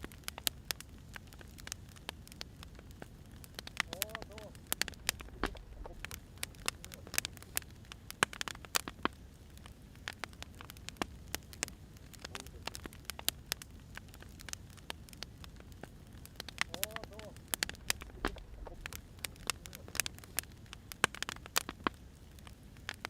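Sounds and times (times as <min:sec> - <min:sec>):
firewood crackling: 0:00.0 - 0:23.0
low steady hiss: 0:00.0 - 0:23.0
sharp pops: 0:03.5 - 0:09.2, 0:15.7 - 0:22.0.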